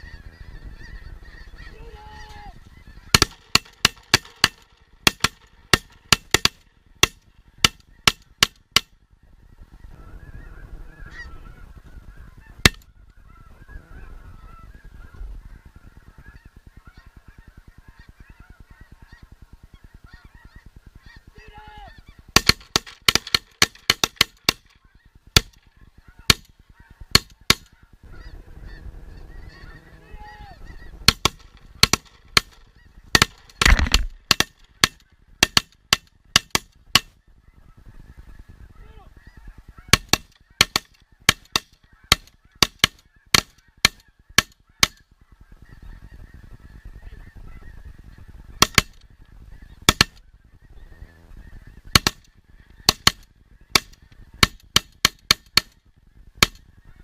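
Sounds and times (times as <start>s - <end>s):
geese honking: 0.0s - 57.0s
rapid shotgun fire: 3.1s - 8.8s, 22.4s - 24.8s, 31.0s - 37.2s.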